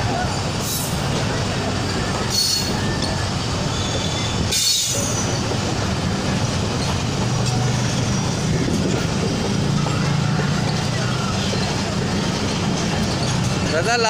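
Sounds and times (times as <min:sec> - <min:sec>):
train wheels rumbling: 0:00.0 - 0:14.0
high-pitched wheel squeal: 0:01.8 - 0:05.4.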